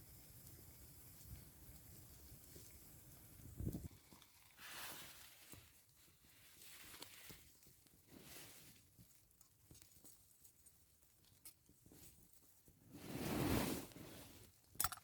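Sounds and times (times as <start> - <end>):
fabric ticks and rustles: 1.1 - 12.9
wind gusting against tarp: 3.4 - 3.9, 12.9 - 14.5.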